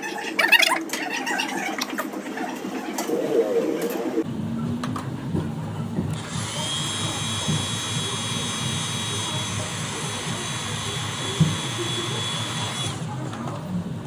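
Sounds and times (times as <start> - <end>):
power tool motor whining: 6.1 - 13.5.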